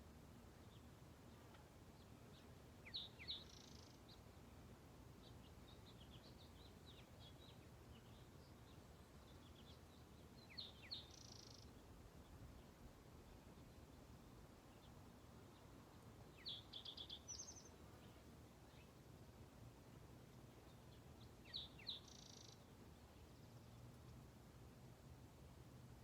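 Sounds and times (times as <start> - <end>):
low background hiss: 0.0 - 26.0
songbird singing: 0.3 - 24.3
soft bird chirps: 2.0 - 4.4, 5.2 - 12.7, 14.7 - 19.0, 20.6 - 24.1.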